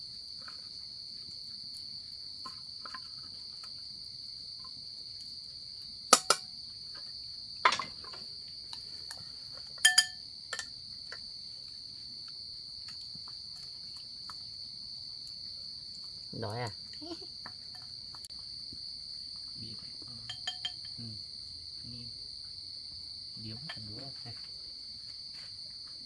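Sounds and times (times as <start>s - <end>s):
insects chirring: 0.0s - 26.0s
sharp knocks and clinks: 6.2s - 6.5s, 7.6s - 8.3s, 9.8s - 11.2s, 20.1s - 21.1s, 23.6s - 24.1s.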